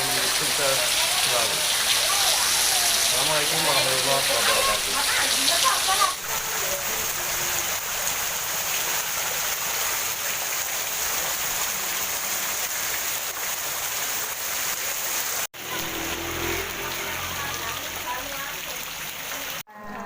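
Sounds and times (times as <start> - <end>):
faint voices: 0.0 - 7.7
heavy rain pouring: 0.0 - 19.7.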